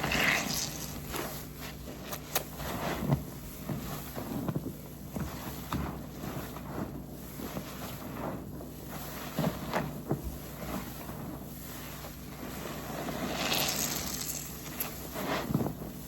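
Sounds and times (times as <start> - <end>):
wet hissing: 0.0 - 1.1, 13.2 - 15.0
wet sponge squelching: 0.0 - 16.0.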